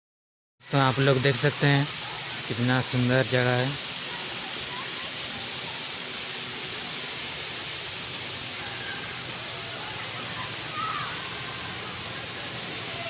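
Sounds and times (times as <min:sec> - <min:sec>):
waterfall rushing: 0:00.6 - 0:13.0.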